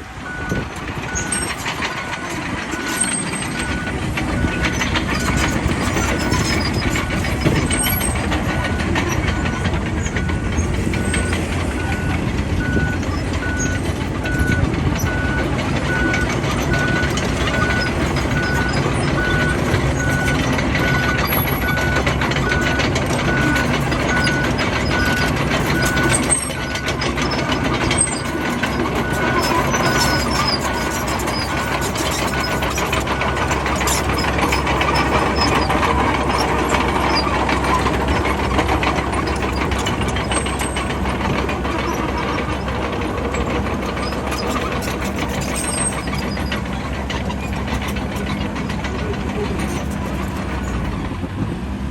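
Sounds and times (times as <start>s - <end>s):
bulldozer diesel engine: 0.0s - 51.9s
reversing alarm beeping: 0.2s - 41.4s.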